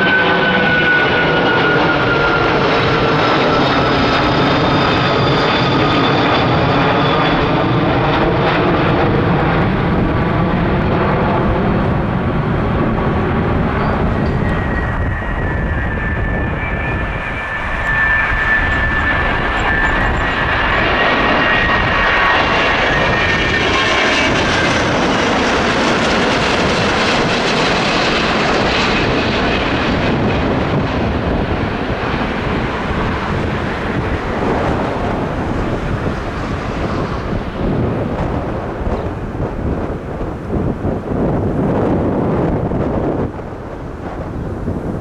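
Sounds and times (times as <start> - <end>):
jet airliner passing low: 0.0 - 45.0
wind on microphone: 0.0 - 45.0.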